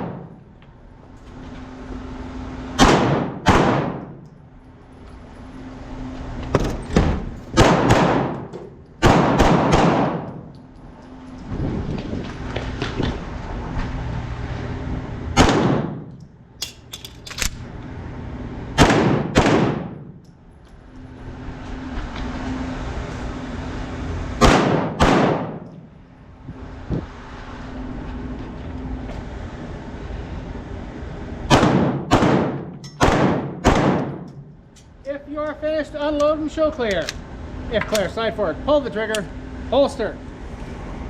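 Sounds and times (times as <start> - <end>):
pistol shots: 2.8 - 4.2, 7.6 - 10.4, 15.4 - 16.0, 18.8 - 20.1, 24.4 - 25.6, 31.5 - 34.3.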